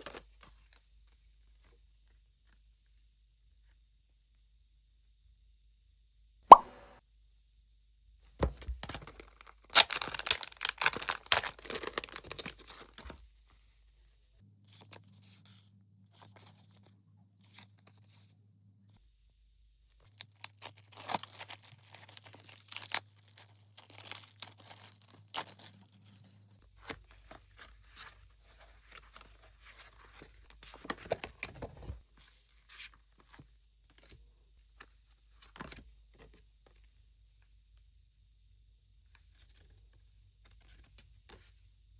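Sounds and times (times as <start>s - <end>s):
packaging tearing and crinkling: 8.9s - 13.0s, 20.1s - 26.3s.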